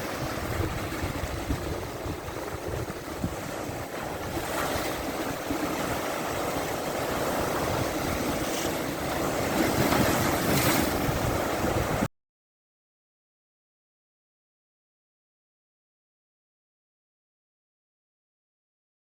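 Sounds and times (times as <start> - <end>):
big waves breaking: 0.0 - 12.1
wind buffeting microphone: 0.0 - 12.1.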